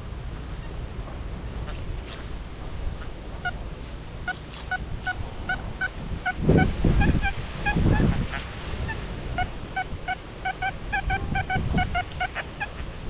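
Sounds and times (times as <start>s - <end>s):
wind rumbling on microphone: 0.0s - 13.0s
geese honking: 2.8s - 13.0s.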